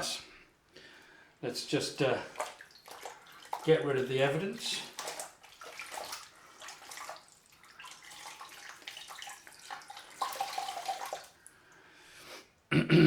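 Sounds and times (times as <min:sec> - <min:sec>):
hands splashing water at sink: 0:02.3 - 0:11.4.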